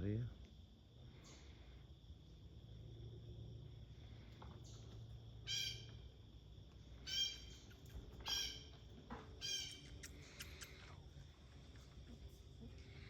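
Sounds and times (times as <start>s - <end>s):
blue jay harsh calls: 5.4s - 5.9s, 7.0s - 8.7s, 9.4s - 10.9s.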